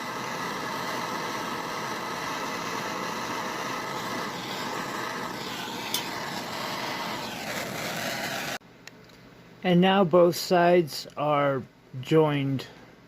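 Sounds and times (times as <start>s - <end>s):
soldering torch hissing: 0.0s - 8.6s.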